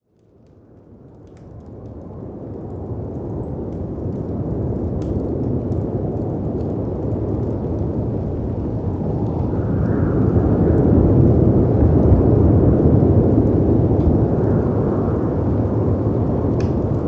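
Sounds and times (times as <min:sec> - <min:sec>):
fireplace crackles: 0:00.0 - 0:17.0
wind rushing: 0:07.1 - 0:17.0.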